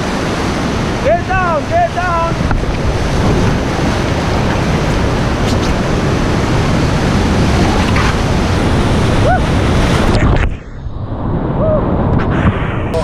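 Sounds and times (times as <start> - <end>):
river rapids rushing: 0.0 - 10.2
wind buffeting microphone: 0.0 - 13.0.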